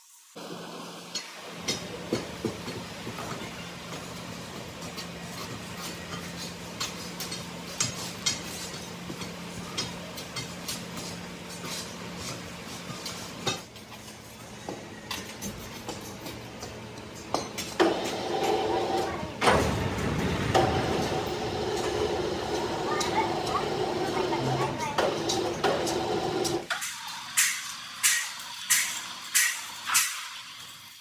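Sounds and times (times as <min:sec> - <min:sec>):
metal clanks and knocks: 0:15.2 - 0:26.7
machine hum: 0:17.8 - 0:26.7.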